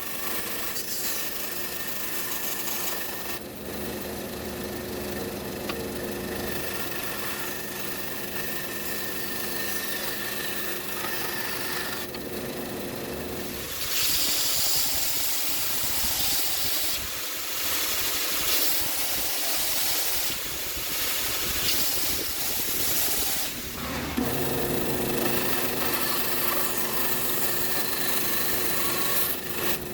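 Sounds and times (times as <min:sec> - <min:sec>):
power tool motor humming: 0:00.0 - 0:29.9
loud hissing grating noise: 0:13.4 - 0:24.2.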